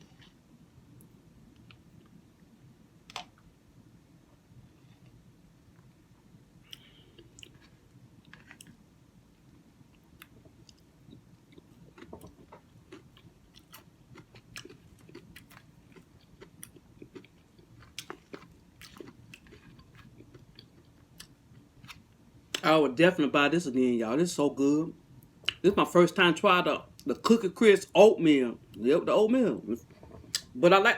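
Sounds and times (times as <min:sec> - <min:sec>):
faint low hum: 0:00.0 - 0:30.9
close chewing and mouth clicks: 0:06.6 - 0:08.8, 0:09.5 - 0:22.7.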